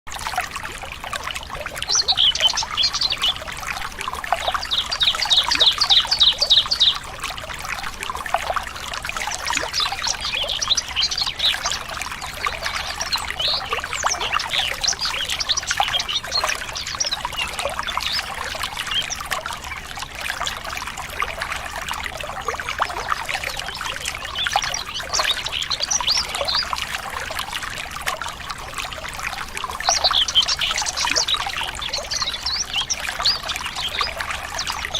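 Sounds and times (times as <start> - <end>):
trickling stream: 0.1 - 34.9
small birds chirping: 1.8 - 3.5, 4.3 - 7.1, 9.4 - 19.3, 23.9 - 27.1, 29.8 - 34.9.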